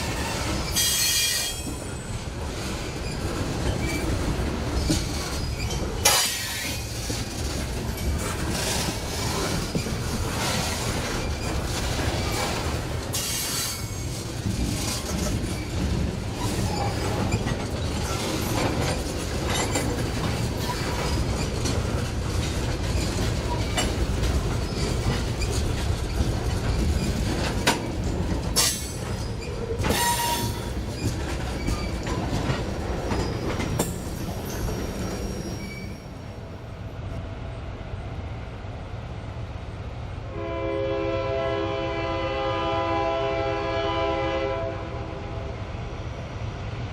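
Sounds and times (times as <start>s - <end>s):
wheels clicking over rail joints: 0.0s - 36.2s
train rumbling past: 0.0s - 46.9s
locomotive horn: 29.9s - 30.7s, 40.3s - 45.5s.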